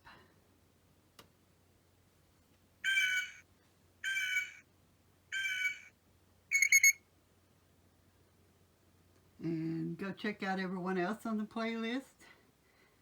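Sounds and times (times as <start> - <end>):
short electronic tones: 2.9 - 3.4, 4.0 - 4.6, 5.4 - 5.9, 6.5 - 7.0.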